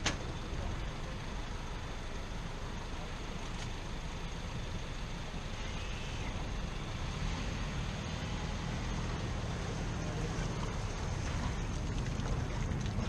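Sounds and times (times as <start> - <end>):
outboard motor running: 9.8 - 13.0
rushing water: 10.3 - 13.0.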